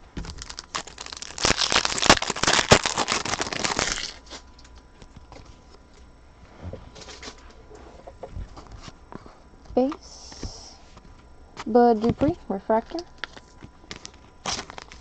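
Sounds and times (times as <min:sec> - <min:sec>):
wrapper tearing open: 0:00.2 - 0:04.5, 0:13.1 - 0:15.0
plastic card pack wrapper crinkling: 0:00.2 - 0:05.4, 0:12.8 - 0:15.0.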